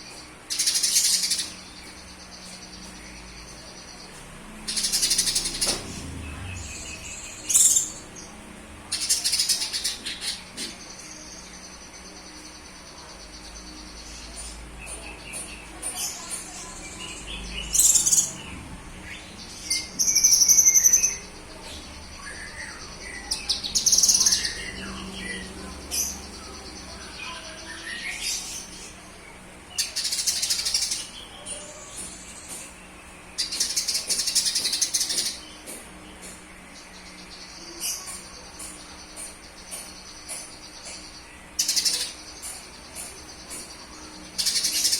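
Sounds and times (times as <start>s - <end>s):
songbird chattering song: 0.0s - 44.9s.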